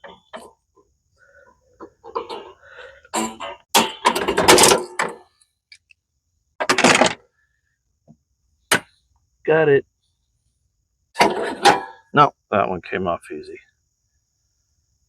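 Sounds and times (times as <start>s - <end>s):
metal parts scraping and clattering: 3.2s - 5.2s, 6.6s - 7.2s, 11.2s - 12.0s.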